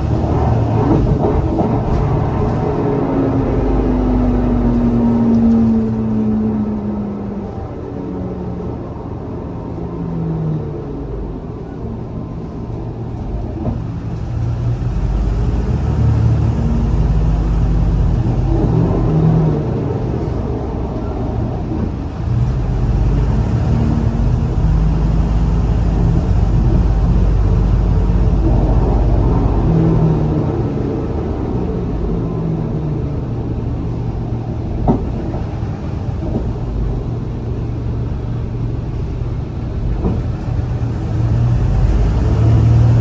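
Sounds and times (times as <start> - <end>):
bus engine rumble: 0.0 - 43.0.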